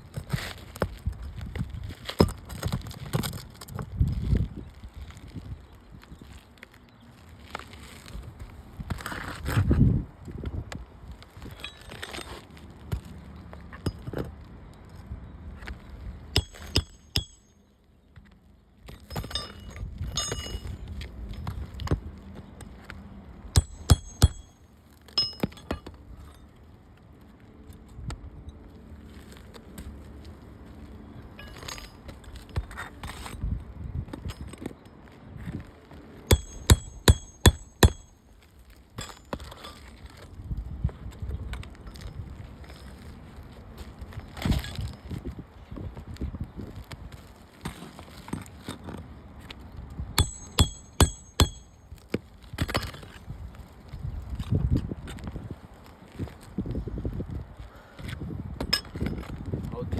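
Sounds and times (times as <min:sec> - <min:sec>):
scraping and rustling on shingles: 0:00.0 - 0:25.2, 0:25.8 - 0:50.1, 0:51.7 - 0:59.7
metal tools scraping roof shingles: 0:11.4 - 0:12.6, 0:16.4 - 0:17.6, 0:18.9 - 0:21.7, 0:23.6 - 0:26.5, 0:31.4 - 0:33.4, 0:36.3 - 0:40.2, 0:50.2 - 0:51.8
hammer blows on metal: 0:23.6 - 0:24.5, 0:36.3 - 0:38.1, 0:50.2 - 0:51.8.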